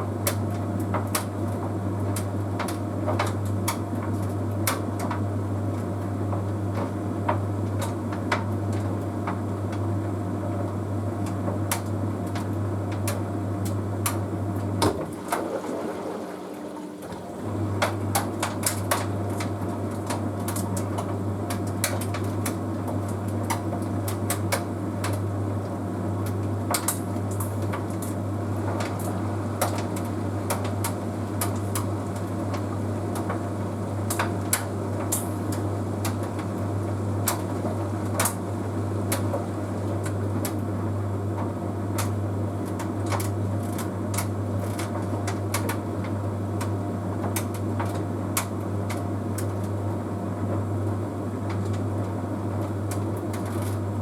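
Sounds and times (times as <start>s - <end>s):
tumble dryer humming: 13.4s - 20.4s.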